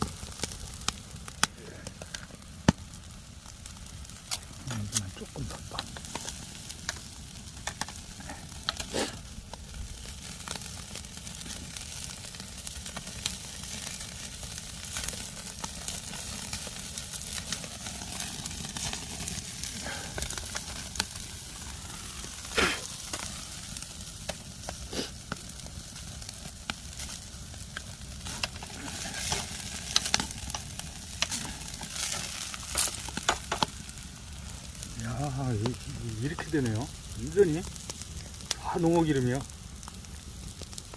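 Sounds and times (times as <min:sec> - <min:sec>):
fat sizzling on a fire: 0:00.0 - 0:40.9.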